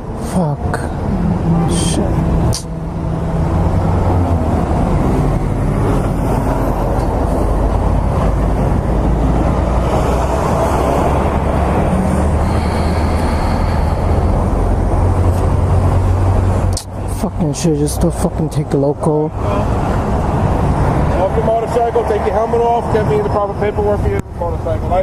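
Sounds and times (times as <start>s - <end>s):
motorcycle engine drone: 0.0s - 16.7s
loud rushing noise: 0.9s - 16.7s.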